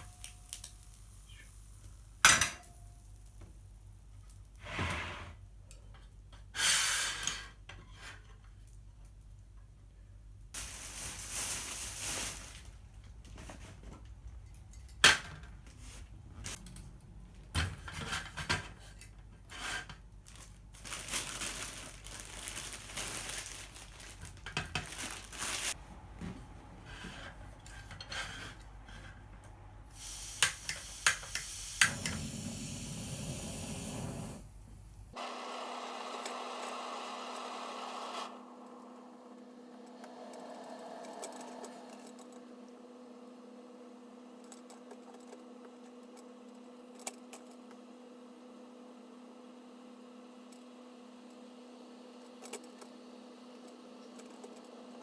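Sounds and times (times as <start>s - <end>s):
steady hiss: 29.9s - 35.2s.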